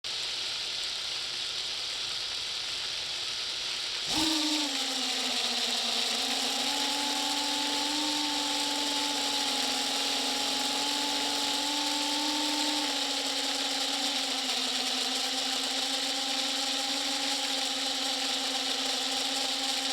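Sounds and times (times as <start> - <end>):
steady hiss: 0.0 - 4.1
small motor running: 4.0 - 19.9.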